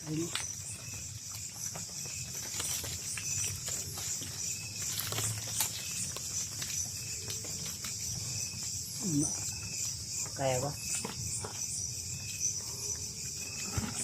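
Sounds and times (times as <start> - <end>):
crickets buzzing: 0.0 - 14.0
footsteps through undergrowth: 0.8 - 8.8.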